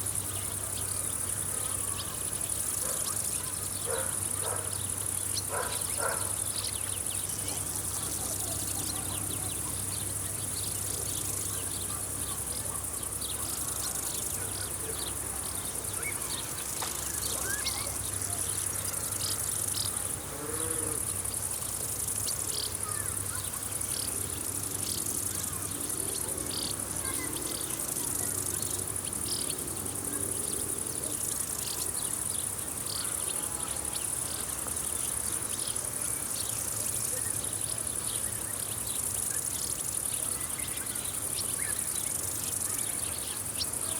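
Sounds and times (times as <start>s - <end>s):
insects chorus: 0.0s - 43.9s.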